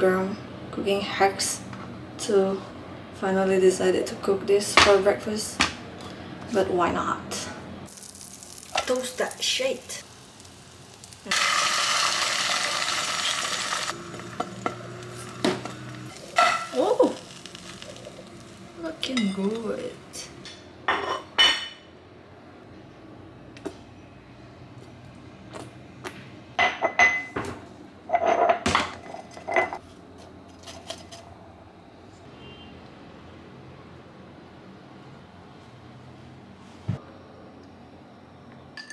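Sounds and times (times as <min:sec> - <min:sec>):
food sizzling in a frying pan: 0:07.9 - 0:20.2
kitchenware clattering: 0:11.3 - 0:21.8, 0:26.6 - 0:29.8.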